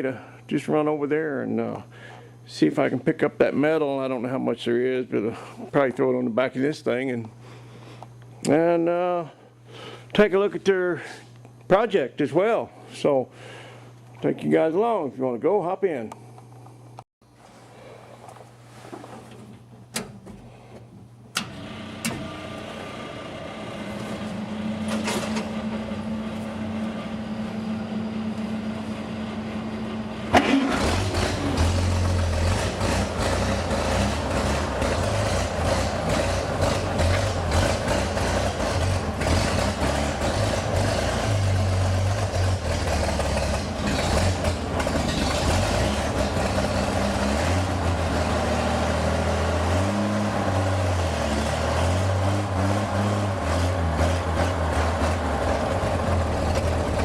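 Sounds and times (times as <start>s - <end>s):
truck engine starter whirring: 21.3s - 26.1s, 30.3s - 48.4s
truck engine idling unevenly: 25.5s - 48.9s, 54.7s - 57.0s.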